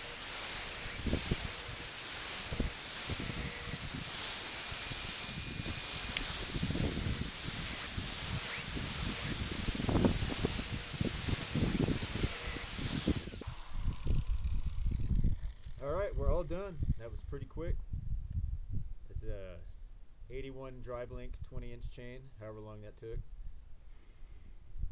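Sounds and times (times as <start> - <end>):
grinder motor spinning down: 0.0 - 17.3
angle grinder grinding metal: 0.0 - 17.4.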